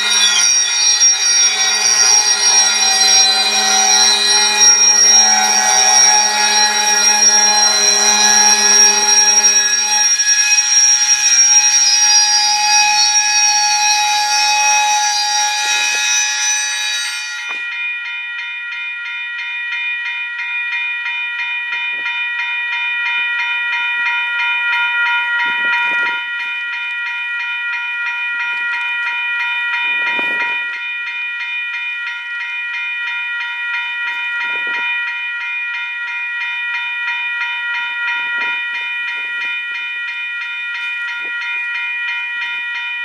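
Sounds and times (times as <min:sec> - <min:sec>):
rail cars rumbling: 0:00.0 - 0:13.5
crossing bell ringing: 0:00.0 - 0:43.0.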